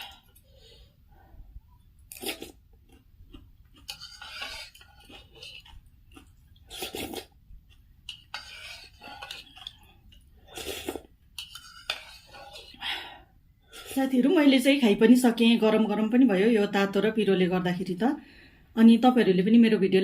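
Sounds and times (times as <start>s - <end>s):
chewing: 2.0s - 12.8s.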